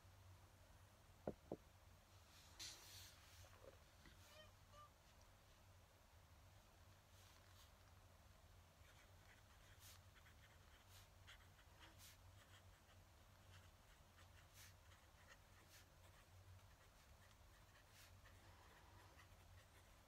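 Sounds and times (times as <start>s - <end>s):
pen nib scratching on paper: 8.8s - 20.0s.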